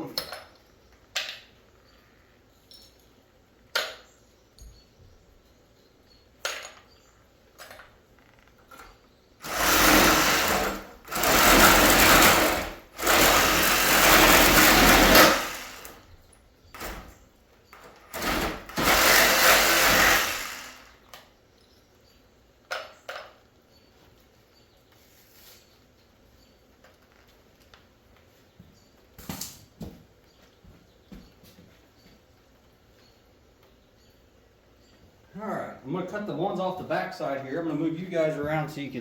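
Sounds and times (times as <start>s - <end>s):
handheld power tool running: 9.4s - 16.0s, 18.1s - 21.0s.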